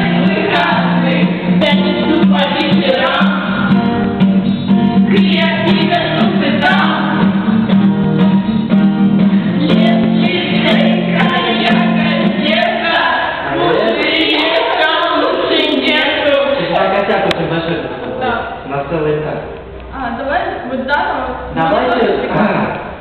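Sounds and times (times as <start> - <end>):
voices singing together: 0.0 - 3.8, 5.1 - 7.6, 9.4 - 17.2
acoustic guitar: 0.0 - 23.0.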